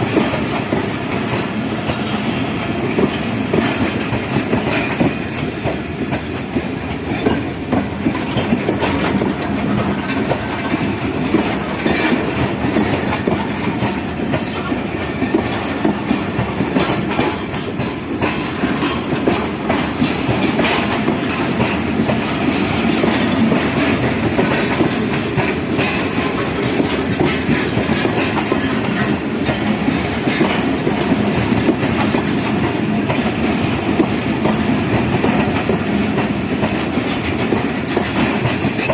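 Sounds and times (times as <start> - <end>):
low rolling train noise: 0.0 - 38.9
train wheels clicking over rails: 0.0 - 38.9.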